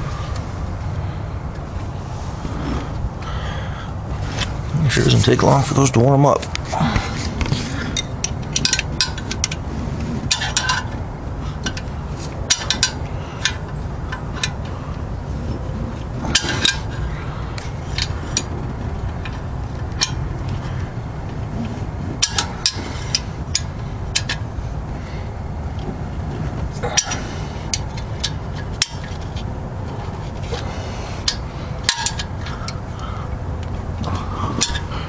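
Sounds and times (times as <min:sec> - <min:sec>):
steady low rumble: 0:00.0 - 0:35.0
wrench clinking on bolts: 0:31.2 - 0:32.8.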